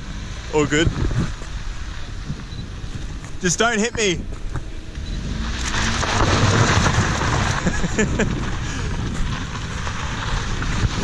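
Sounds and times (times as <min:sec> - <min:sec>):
car engine revving: 0:00.0 - 0:11.0
tyre wheelspin rush: 0:05.0 - 0:11.0.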